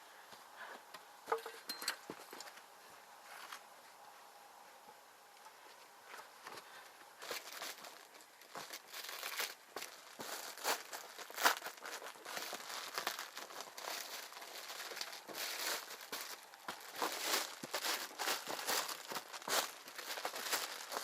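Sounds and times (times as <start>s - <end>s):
material crinkling and rustling: 5.5s - 21.0s.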